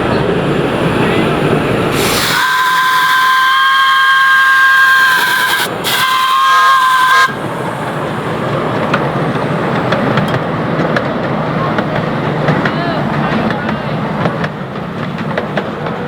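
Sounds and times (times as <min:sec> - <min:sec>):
train rumbling along track: 0:00.0 - 0:16.0
steam locomotive whistle chord: 0:01.9 - 0:07.7.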